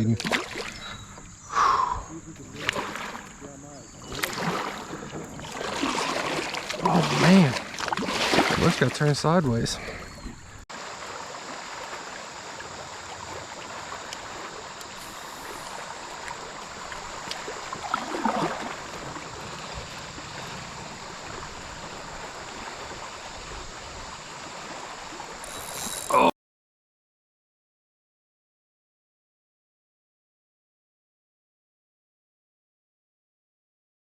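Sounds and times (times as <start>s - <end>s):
flowing river water: 0.0s - 26.1s.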